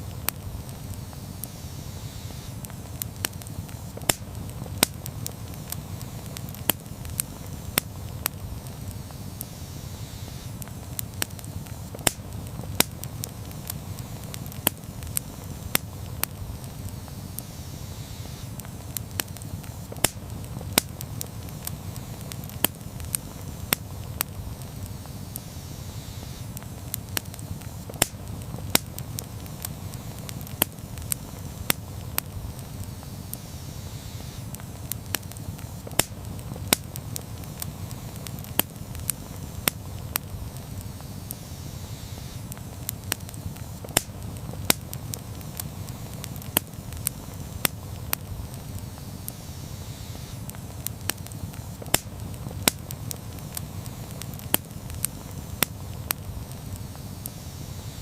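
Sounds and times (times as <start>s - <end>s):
campfire flames rumbling: 0.0s - 58.0s
fire crackling and popping: 0.0s - 58.0s.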